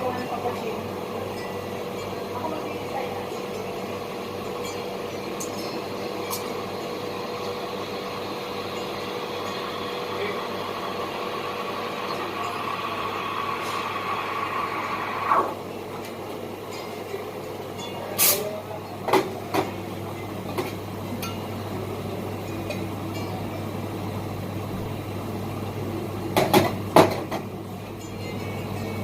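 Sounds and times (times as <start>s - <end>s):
coffee grinder motor whining: 8.1s - 15.7s.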